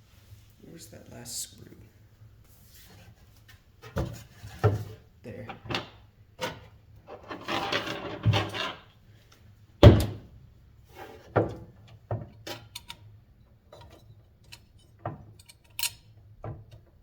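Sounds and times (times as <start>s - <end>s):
metal parts knocking and clicking: 13.7s - 16.1s.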